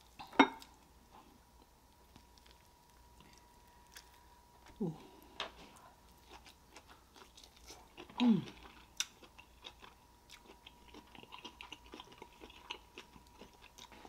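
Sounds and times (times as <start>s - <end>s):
wet chewing and mouth smacks: 1.9s - 4.8s, 5.6s - 14.0s
person humming: 4.7s - 5.2s, 8.2s - 8.6s.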